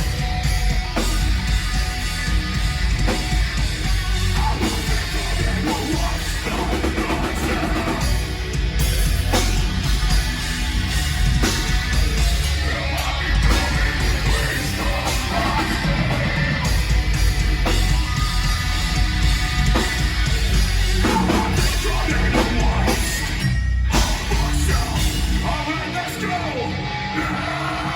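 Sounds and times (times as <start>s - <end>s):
drum kit: 0.0s - 26.4s
distorted electric guitars: 0.0s - 27.9s
yelled vocals: 0.0s - 27.9s.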